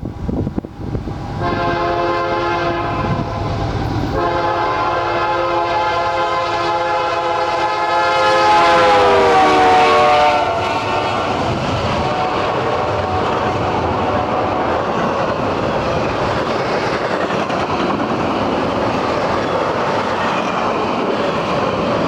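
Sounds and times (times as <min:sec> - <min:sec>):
train rumbling past: 0:00.0 - 0:22.0
locomotive air horn: 0:01.4 - 0:14.9.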